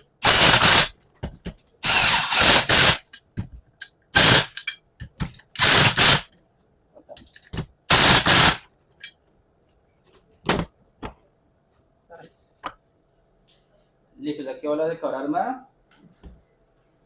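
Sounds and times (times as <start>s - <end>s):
impact wrench rattling bursts: 0.2s - 1.0s, 1.8s - 3.1s, 4.1s - 4.7s, 5.3s - 6.3s, 7.9s - 8.7s.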